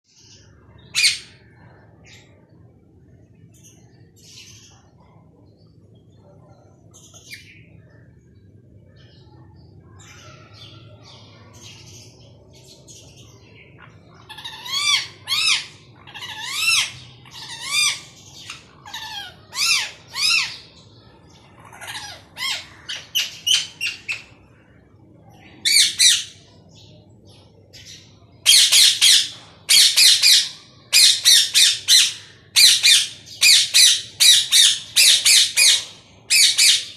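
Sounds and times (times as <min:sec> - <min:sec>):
parrot chirping and calling: 0:00.8 - 0:01.4, 0:14.2 - 0:20.7, 0:21.6 - 0:24.4, 0:25.6 - 0:26.5, 0:28.4 - 0:36.9
parrot squawking harshly: 0:14.3 - 0:18.1.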